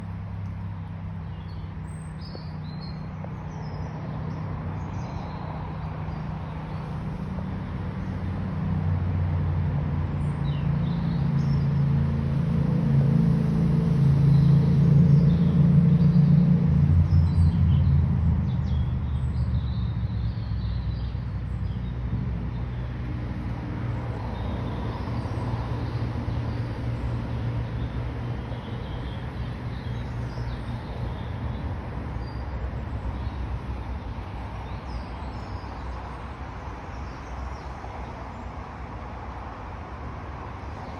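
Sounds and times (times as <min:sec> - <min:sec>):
small birds chirping: 0:00.0 - 0:08.3, 0:16.8 - 0:38.6
low engine hum: 0:00.0 - 0:40.9.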